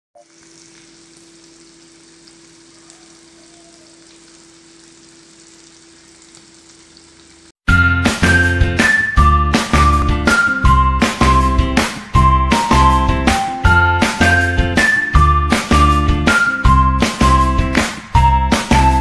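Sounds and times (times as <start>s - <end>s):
food sizzling in a wok: 0.2s - 7.5s
cheerful music: 7.7s - 19.0s.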